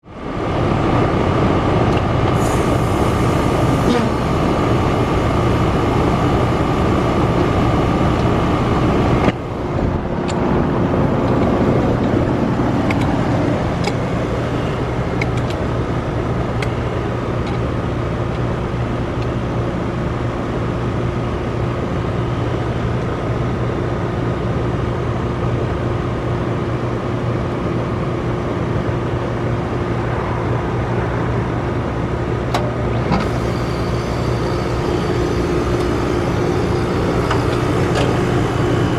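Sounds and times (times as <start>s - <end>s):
heat pump humming: 0.3s - 19.4s, 32.1s - 38.9s
high hiss and tone: 33.3s - 38.9s.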